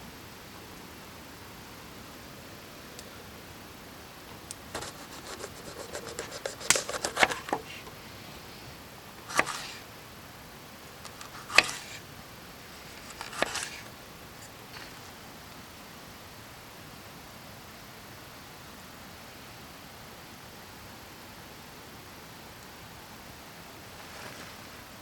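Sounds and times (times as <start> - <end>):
handling clicks and taps: 6.0 - 8.0.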